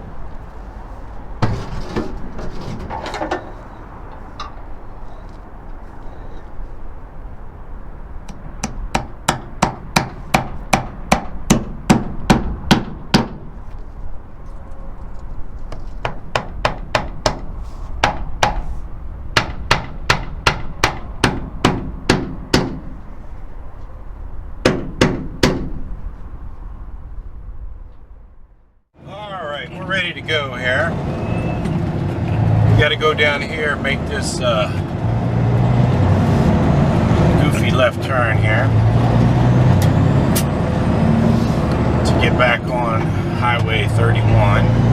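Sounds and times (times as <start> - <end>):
low rumble: 0.0 - 28.9
hammer driving nail into wood: 8.3 - 13.4, 16.0 - 18.6, 19.4 - 23.0, 24.6 - 25.9.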